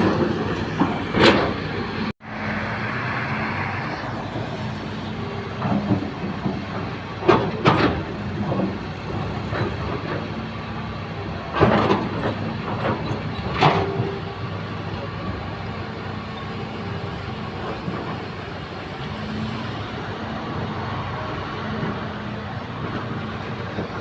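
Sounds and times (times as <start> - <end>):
machinery clanks and knocks: 0.0 - 2.1, 4.2 - 24.0
excavator diesel engine: 0.0 - 24.0.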